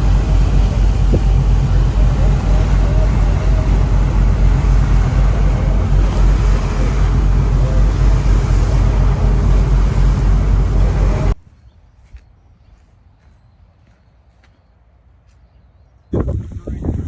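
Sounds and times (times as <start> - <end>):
moving vehicle rumble: 0.0 - 11.4.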